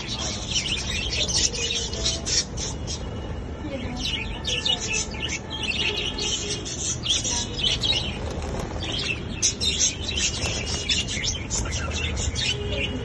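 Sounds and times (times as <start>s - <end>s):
lovebirds chirping: 0.0s - 13.0s
wings flapping: 7.6s - 12.2s.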